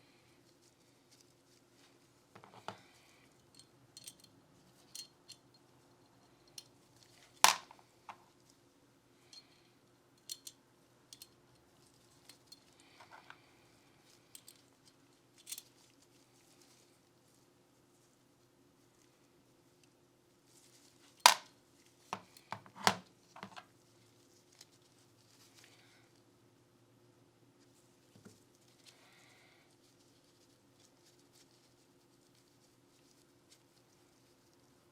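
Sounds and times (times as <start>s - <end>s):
small metal parts clicking: 3.5s - 4.3s, 7.4s - 7.8s, 10.2s - 11.4s, 21.3s - 21.5s, 22.2s - 23.6s.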